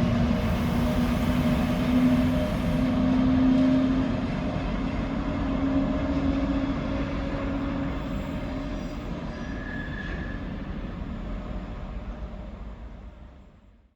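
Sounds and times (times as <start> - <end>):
locomotive hum: 0.0 - 4.3
freight train running: 0.0 - 13.8.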